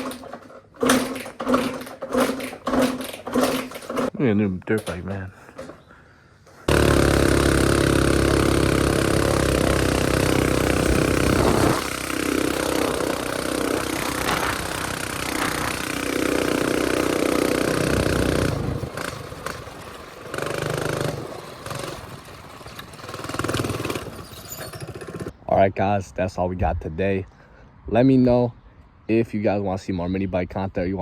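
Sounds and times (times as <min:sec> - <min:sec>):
mini bike engine revving: 0:00.0 - 0:04.1, 0:06.7 - 0:25.3.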